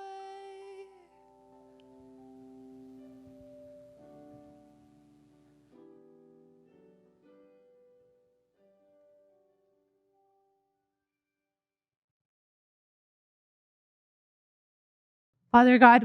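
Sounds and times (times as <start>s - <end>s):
soft keyboard chords: 0.0s - 9.6s.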